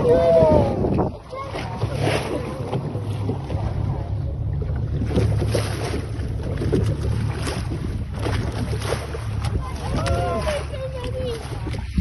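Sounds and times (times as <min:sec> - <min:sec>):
wind on microphone: 0:00.0 - 0:04.1, 0:06.5 - 0:12.0
motorboat engine humming: 0:00.0 - 0:12.0
water noise: 0:00.0 - 0:12.0.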